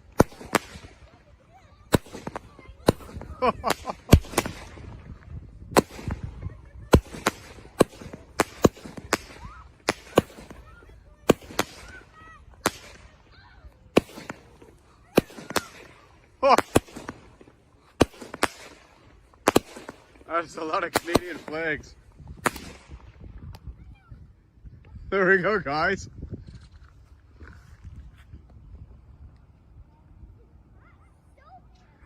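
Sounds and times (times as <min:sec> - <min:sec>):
firework pops and bangs: 0:00.0 - 0:01.1, 0:01.9 - 0:13.2, 0:13.8 - 0:23.8.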